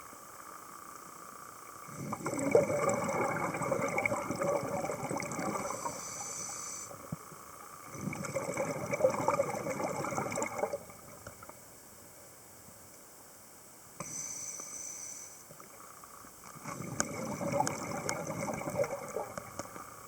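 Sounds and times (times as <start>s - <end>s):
underwater bubbles gurgling: 1.8s - 11.6s, 15.5s - 20.0s.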